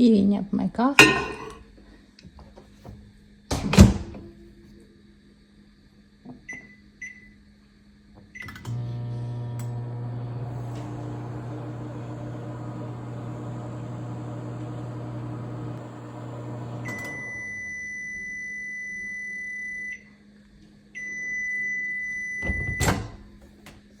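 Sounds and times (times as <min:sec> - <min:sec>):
loud clunk: 0:01.0 - 0:01.6
microwave oven humming: 0:08.4 - 0:19.9
microwave click: 0:10.5 - 0:17.2.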